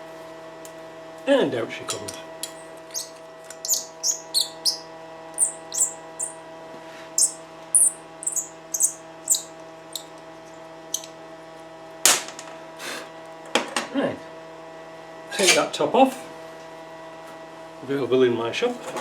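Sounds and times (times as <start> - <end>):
electrical hum: 1.3 - 11.6
small bird chirping: 2.4 - 6.4, 7.2 - 10.1, 10.9 - 11.1.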